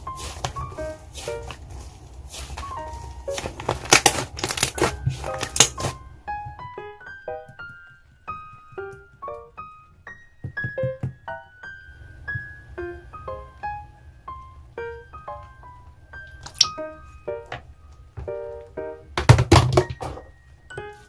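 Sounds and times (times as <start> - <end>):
plucky keyboard melody: 4.8 - 19.2, 20.0 - 21.0.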